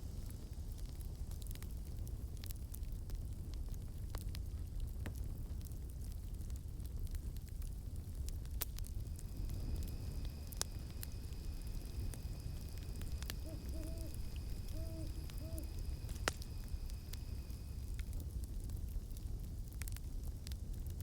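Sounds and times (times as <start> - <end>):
campfire crackling and popping: 0.0 - 21.0
low rumble: 8.8 - 19.1
cicadas droning: 8.9 - 18.4
owl hooting: 9.2 - 17.8.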